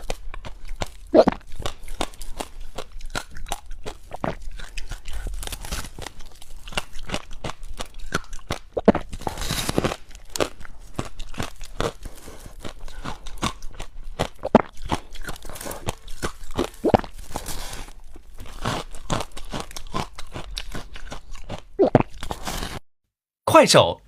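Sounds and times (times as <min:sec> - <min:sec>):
ice being chewed: 0:00.0 - 0:22.8.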